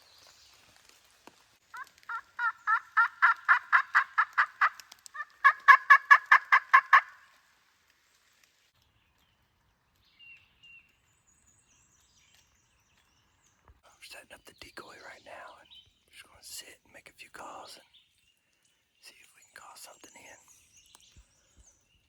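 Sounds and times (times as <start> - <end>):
turkey call yelps: 1.7 - 7.3.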